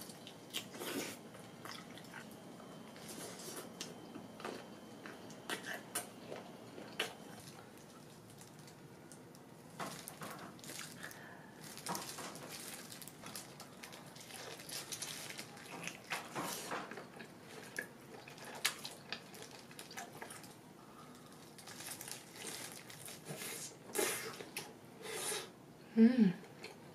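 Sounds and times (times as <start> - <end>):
person chewing shrimp: 0.0 - 2.3, 4.5 - 7.6, 11.8 - 25.5.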